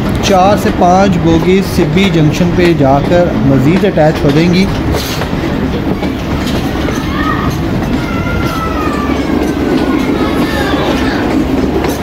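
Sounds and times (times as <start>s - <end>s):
train wheels rumbling on rail: 0.0s - 12.0s
wheel flanges squealing: 0.0s - 12.0s.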